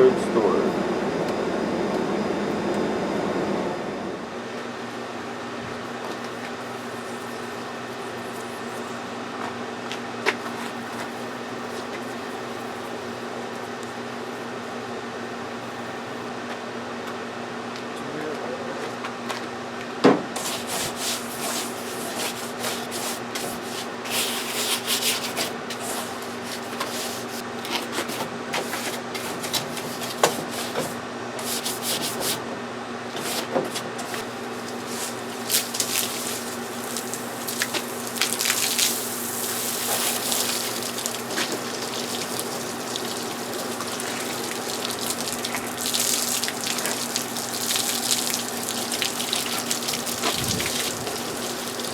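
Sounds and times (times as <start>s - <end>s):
steady low hum: 0.0s - 19.1s
hand sanding scratchy rubbing: 20.4s - 27.4s.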